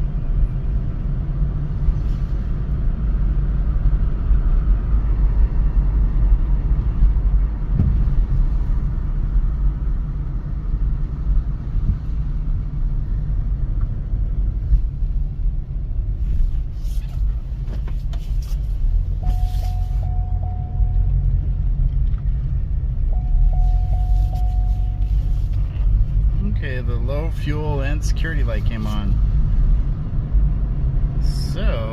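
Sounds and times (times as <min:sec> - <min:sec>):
car engine and road rumble: 0:00.0 - 0:31.9
steady electronic tone: 0:19.2 - 0:21.3, 0:23.1 - 0:25.4.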